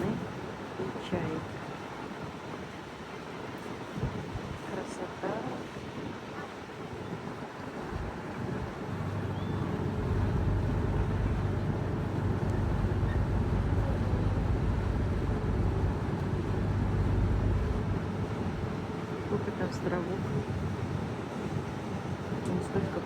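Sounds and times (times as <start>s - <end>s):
wind and water noise: 0.0s - 23.0s
motorboat engine drone: 6.6s - 23.0s.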